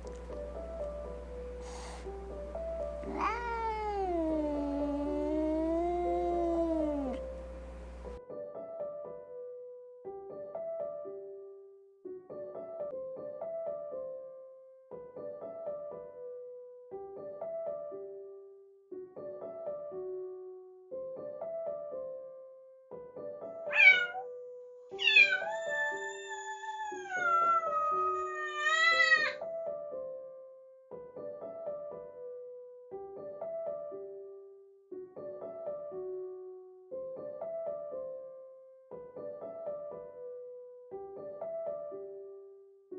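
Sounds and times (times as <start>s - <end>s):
piano-like background melody: 0.0s - 42.9s
kitten meowing: 3.0s - 7.2s, 23.7s - 24.3s, 25.0s - 29.4s.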